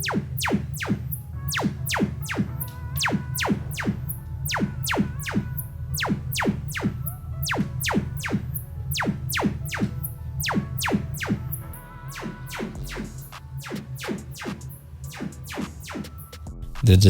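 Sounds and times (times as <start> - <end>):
pulsing bass: 0.0 - 13.4
falling synth sweep: 0.0 - 16.1.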